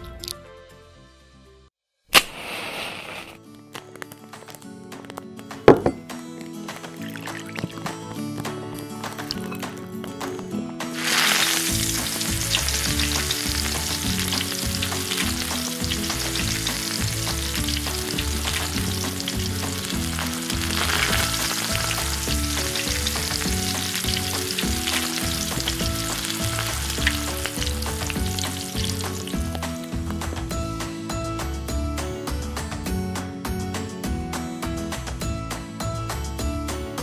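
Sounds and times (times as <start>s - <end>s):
batter sizzling in hot oil: 2.2s - 3.4s, 10.9s - 30.2s.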